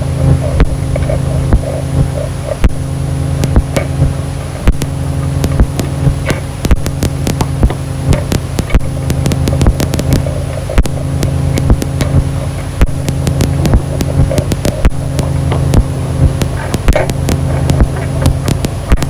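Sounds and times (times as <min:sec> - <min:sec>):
crackling clicks: 0:00.0 - 0:19.0
low drone of stacked tones: 0:00.0 - 0:19.0
thin high whine: 0:00.0 - 0:19.0.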